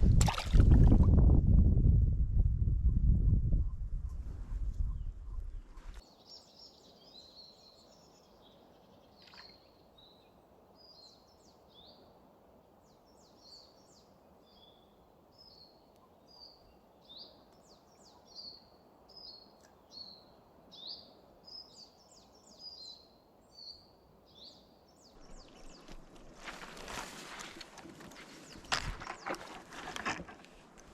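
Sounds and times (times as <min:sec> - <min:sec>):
small birds singing: 0:04.8 - 0:27.0, 0:28.0 - 0:30.1.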